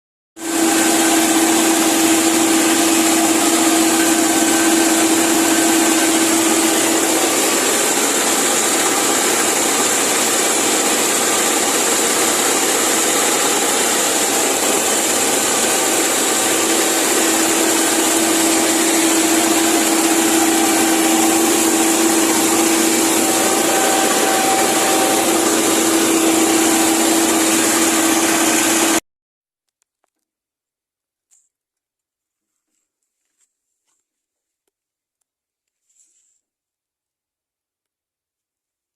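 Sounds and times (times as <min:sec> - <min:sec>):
tractor engine running: 0:00.4 - 0:29.0.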